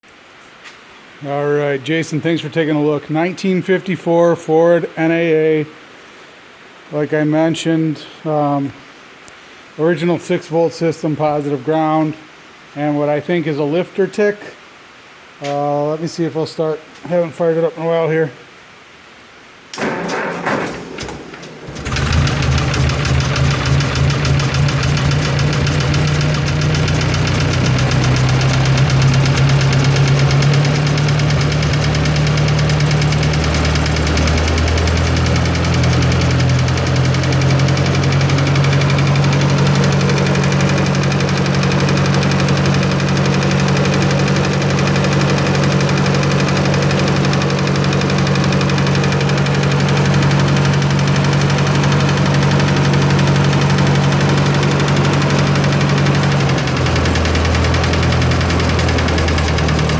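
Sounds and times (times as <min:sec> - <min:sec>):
tractor engine running: 0:19.8 - 0:59.9
knocking tick from engine: 0:21.8 - 0:59.9.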